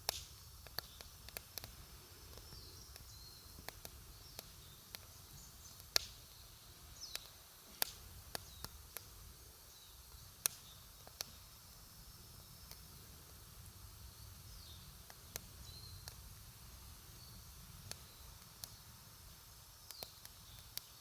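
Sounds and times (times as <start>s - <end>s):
campfire wood crackling: 0.0s - 21.0s.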